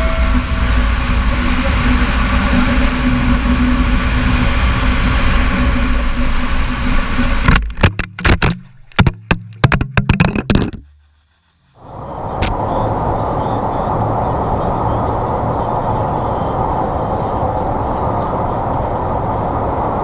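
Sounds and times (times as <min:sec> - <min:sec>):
loud wind noise: 0:00.0 - 0:10.8
motorcycle engine running: 0:00.0 - 0:11.8
low hum: 0:00.0 - 0:20.0
sharp knocks and clatters: 0:07.4 - 0:11.2.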